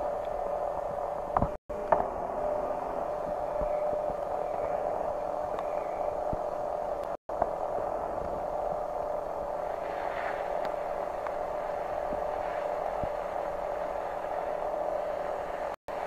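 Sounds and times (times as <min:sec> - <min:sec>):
constant hum: 0:00.0 - 0:16.0
skis rushing on snow: 0:09.6 - 0:14.6.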